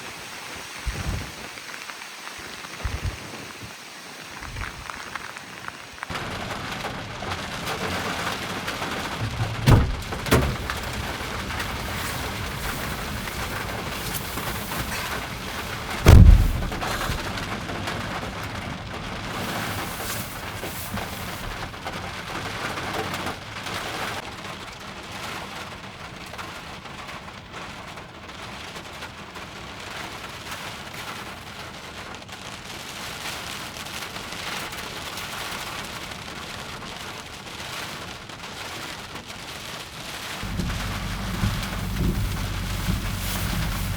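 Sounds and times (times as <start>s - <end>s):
heavy rain and wind: 0.0s - 43.9s
heavy thumps: 9.1s - 17.6s, 19.4s - 21.8s, 40.4s - 43.9s.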